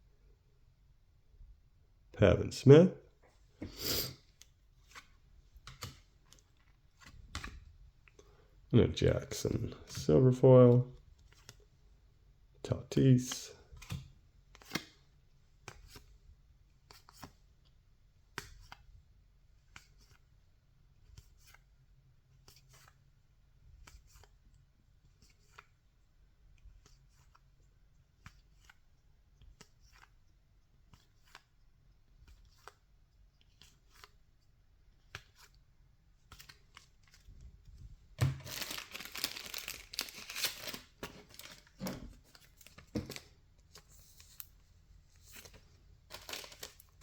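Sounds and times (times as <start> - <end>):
soft clicks and slides of cards: 4.3 - 8.2, 13.8 - 14.9, 16.8 - 17.7, 18.3 - 18.9, 19.6 - 20.4, 21.0 - 21.7, 22.3 - 23.0, 23.8 - 25.8, 26.6 - 37.8
trading cards being handled: 13.0 - 15.0, 19.6 - 20.3, 26.7 - 31.6, 32.2 - 47.0
plastic wrapper crackling and tearing: 38.2 - 41.8, 46.1 - 47.0.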